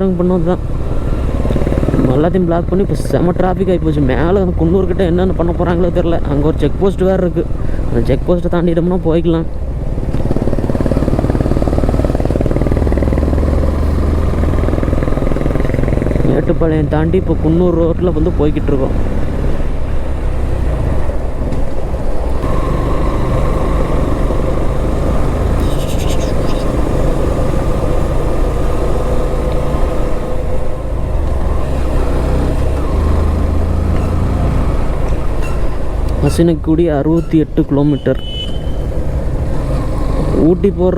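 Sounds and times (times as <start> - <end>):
motorcycle engine throbbing: 0.0 - 40.9
deep low hum: 9.6 - 36.3.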